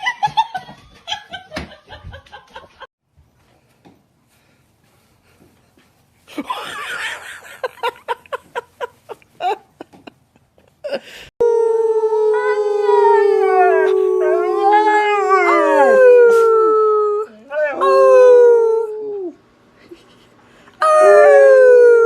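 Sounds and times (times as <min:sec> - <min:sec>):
dog howling: 0:11.4 - 0:19.4, 0:20.8 - 0:22.0.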